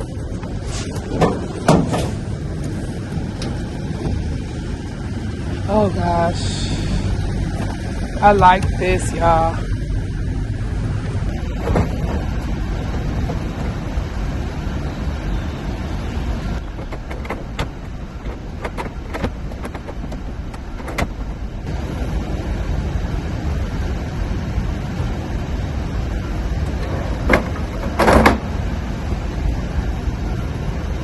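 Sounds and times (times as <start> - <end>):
steady low rumble: 0.0 - 31.0
drawer scrape: 0.6 - 2.8.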